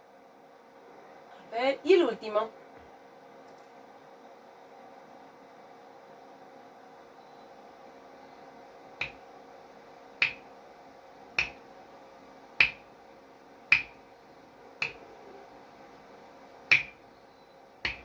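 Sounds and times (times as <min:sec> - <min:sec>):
finger snaps: 0:10.2 - 0:10.4, 0:11.4 - 0:11.6, 0:12.6 - 0:12.8, 0:13.7 - 0:13.9, 0:14.8 - 0:15.0.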